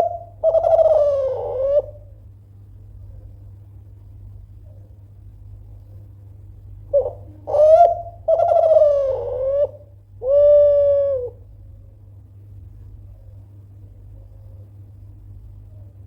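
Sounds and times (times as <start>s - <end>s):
dove cooing: 0.0s - 2.2s, 6.9s - 11.6s.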